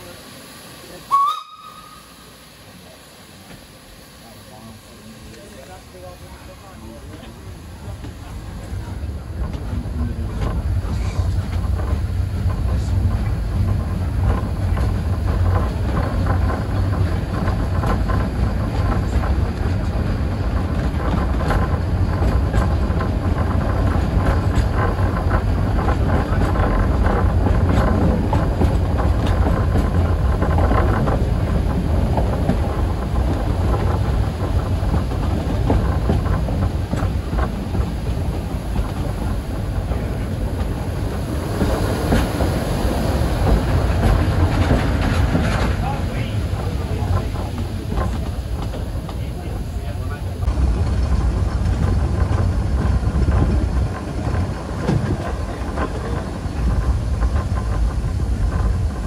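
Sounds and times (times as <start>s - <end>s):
train rumbling on track: 0.0s - 59.0s
train wheels clicking: 2.8s - 59.0s.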